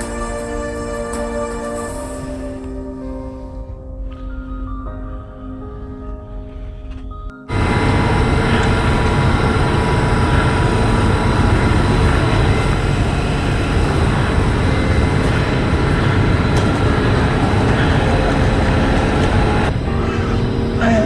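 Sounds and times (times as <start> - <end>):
whining tones: 6.9 - 21.0
passenger train rumbling: 7.5 - 21.0.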